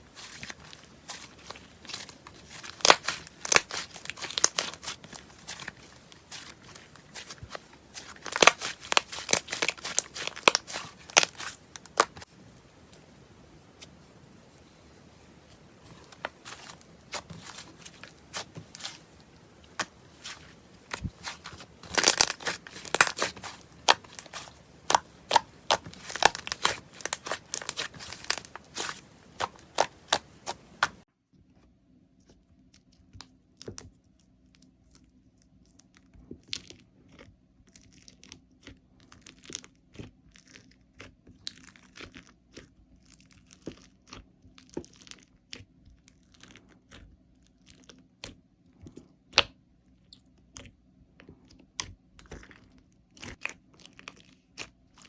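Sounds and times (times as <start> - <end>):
faint steady hum: 0.0 - 55.0
slime popping and crackling: 0.1 - 12.3, 16.1 - 31.0.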